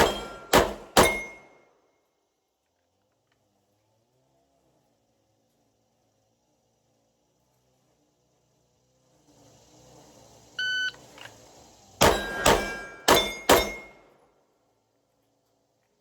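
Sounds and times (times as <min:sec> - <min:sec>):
pistol shots: 0:00.0 - 0:01.5, 0:12.0 - 0:14.0.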